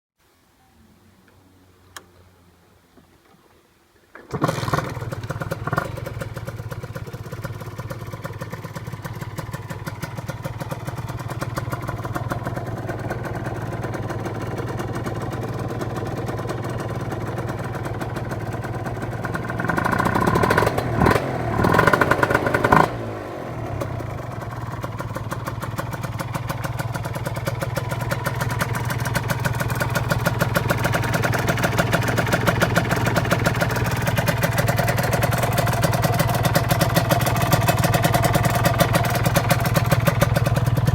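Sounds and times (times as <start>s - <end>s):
two-stroke engine idling and revving: 4.3s - 40.9s.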